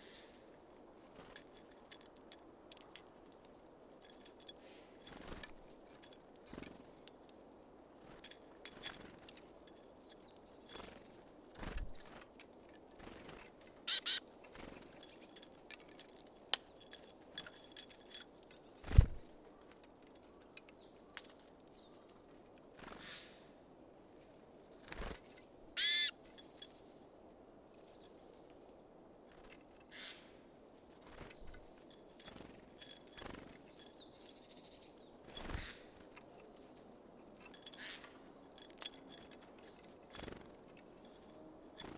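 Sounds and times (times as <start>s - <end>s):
birds pecking at seed: 0.5s - 23.3s, 24.0s - 26.9s, 30.8s - 41.9s
short high bird calls: 13.9s - 14.2s, 25.8s - 26.2s.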